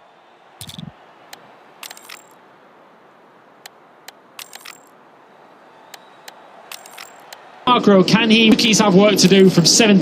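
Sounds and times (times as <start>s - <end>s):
camera shutters clicking: 0.6s - 0.9s, 1.8s - 2.4s, 3.6s - 4.9s, 5.9s - 7.5s.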